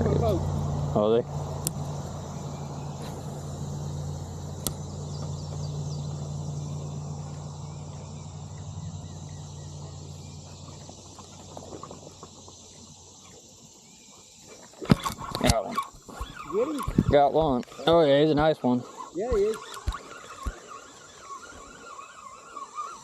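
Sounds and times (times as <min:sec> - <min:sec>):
low engine hum: 0:00.0 - 0:15.4
faint bird chirps: 0:02.0 - 0:11.6, 0:17.8 - 0:23.0.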